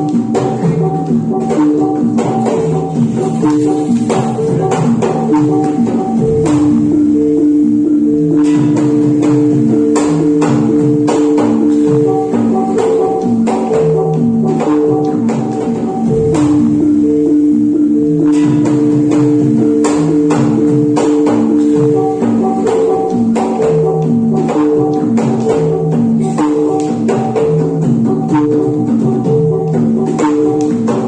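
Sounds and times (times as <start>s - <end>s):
gamelan ringing pitched percussion: 0.0s - 31.0s
sharp drum strikes: 25.2s - 29.4s.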